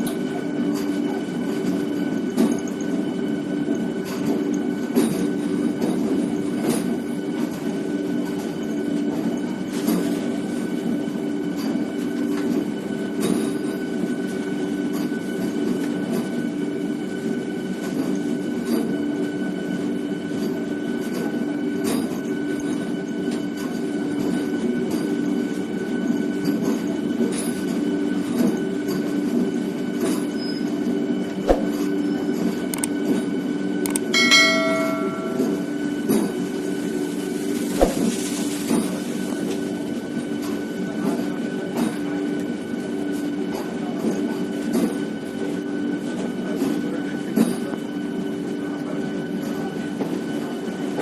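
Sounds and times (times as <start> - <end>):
diesel locomotive engine drone: 0.0 - 51.0
metallic clanks: 33.9 - 35.8
short high-pitched tone: 33.9 - 35.8.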